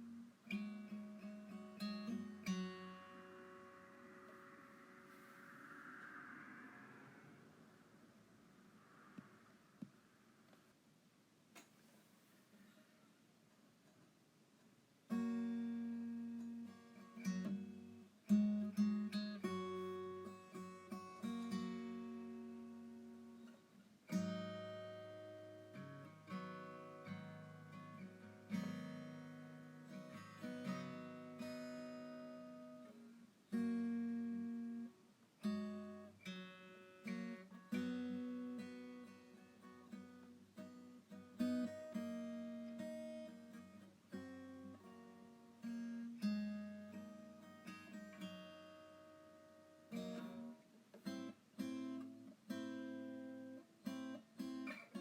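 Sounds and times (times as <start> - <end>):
acoustic guitar strumming chords: 0.0 - 5.5.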